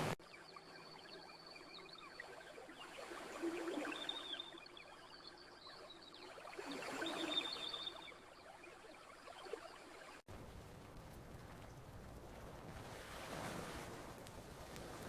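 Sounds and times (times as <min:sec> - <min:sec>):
campfire crackling: 0:10.3 - 0:15.0.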